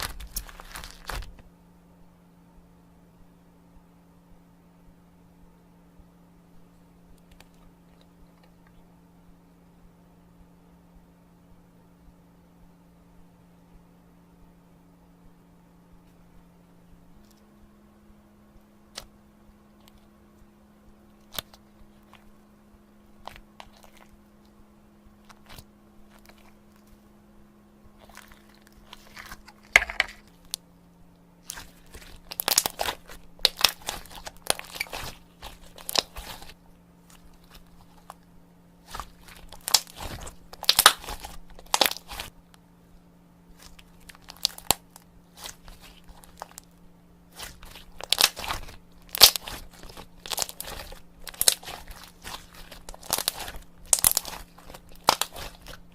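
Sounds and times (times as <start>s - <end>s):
slime crackling: 0.0s - 1.4s, 23.2s - 24.2s, 25.2s - 27.0s, 27.9s - 30.6s, 31.4s - 42.4s, 43.5s - 46.7s, 47.3s - 55.9s.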